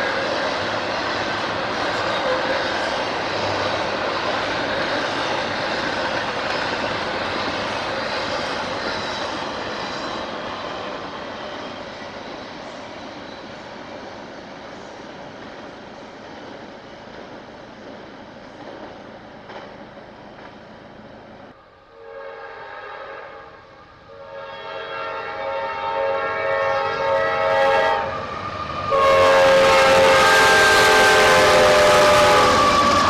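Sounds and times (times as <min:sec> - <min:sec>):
rush of arriving train: 0:00.0 - 0:33.0
train air horn blasts: 0:21.8 - 0:28.3, 0:28.9 - 0:33.0.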